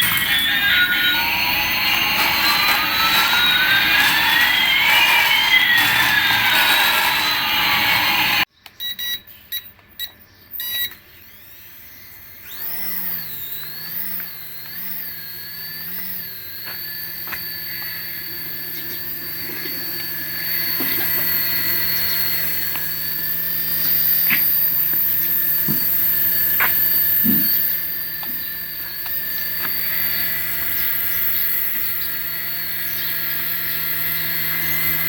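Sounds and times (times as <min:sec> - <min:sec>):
noisy toy sweeping tone: 0:00.0 - 0:08.5
toy electric motor whining: 0:00.0 - 0:35.0.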